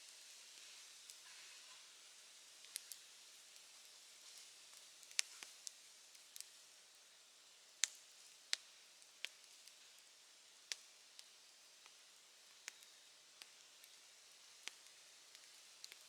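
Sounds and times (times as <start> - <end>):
faint hiss: 0.0 - 16.0
campfire crackling pops: 2.7 - 3.0, 4.4 - 6.6, 7.8 - 9.8, 10.7 - 16.0.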